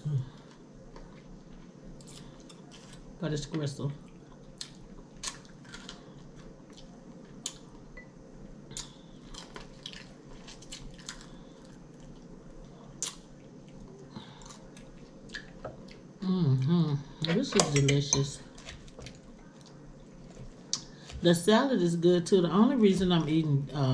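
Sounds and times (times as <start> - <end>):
faint steady hum: 0.0 - 23.9
person biting and chewing: 4.4 - 7.7.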